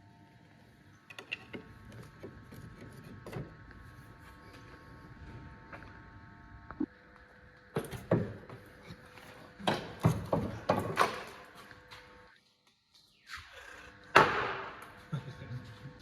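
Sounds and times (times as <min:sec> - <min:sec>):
tools and car parts clunking: 0:07.8 - 0:11.5.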